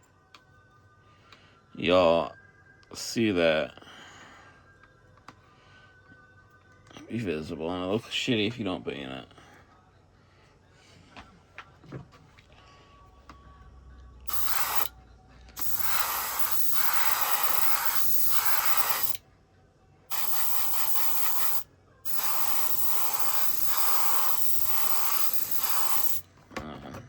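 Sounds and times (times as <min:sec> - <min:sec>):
spray paint hissing bursts: 0:14.3 - 0:14.9, 0:15.6 - 0:19.2, 0:20.1 - 0:26.2.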